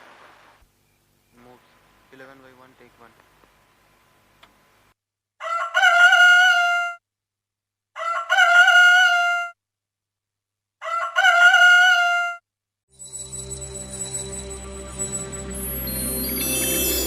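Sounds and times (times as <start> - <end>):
rooster crowing: 5.4 - 7.0, 8.0 - 9.5, 10.8 - 12.4.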